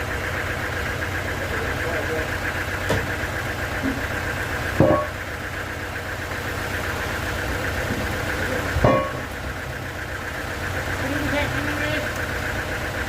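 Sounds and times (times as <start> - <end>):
sawmill machinery droning: 0.0 - 13.0
sharp metallic knocks: 2.8 - 3.2, 4.7 - 5.2, 8.8 - 9.4.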